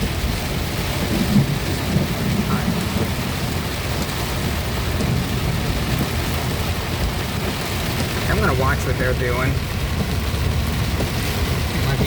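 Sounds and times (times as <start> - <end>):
deep low rumble: 0.0 - 12.0
heavy rain on a car: 0.0 - 12.0.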